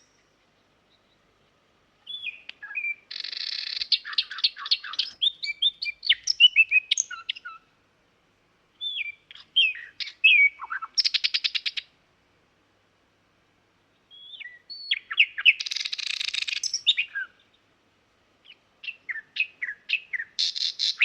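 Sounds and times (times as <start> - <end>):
songbird singing: 0.0 - 7.9, 8.7 - 12.0, 13.6 - 21.0.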